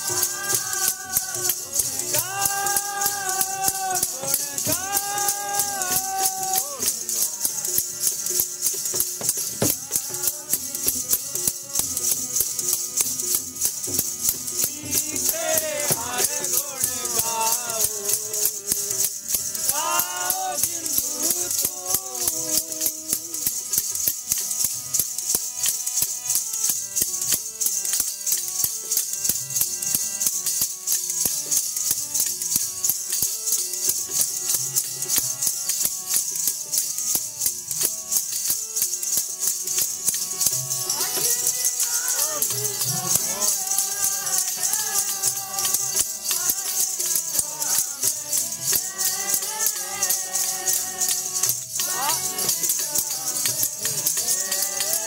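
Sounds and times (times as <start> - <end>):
person singing: 0.0 - 8.2, 9.6 - 13.4, 14.2 - 23.8, 40.9 - 55.0
jingling percussion beat: 0.0 - 55.0.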